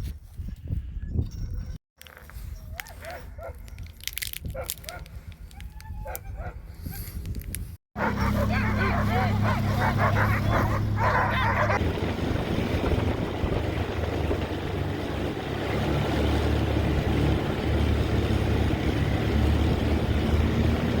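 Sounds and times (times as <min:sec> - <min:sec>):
road noise: 0:02.0 - 0:06.6, 0:08.0 - 0:21.0
vehicle engine drone: 0:08.0 - 0:21.0.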